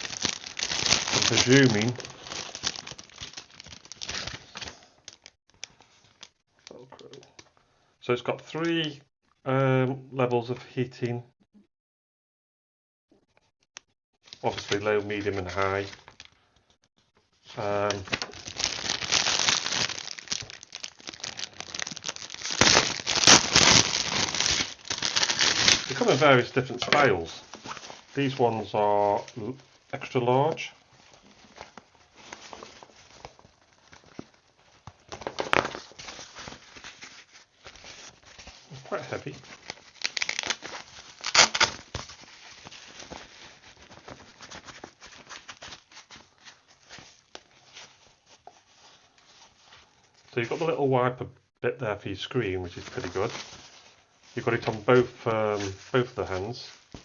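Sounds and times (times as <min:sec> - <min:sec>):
plastic packaging crinkling: 0:00.0 - 0:07.4, 0:17.6 - 0:50.3, 0:52.6 - 0:57.0
gloves rustling: 0:00.0 - 0:07.5, 0:17.5 - 0:50.8, 0:52.4 - 0:57.0.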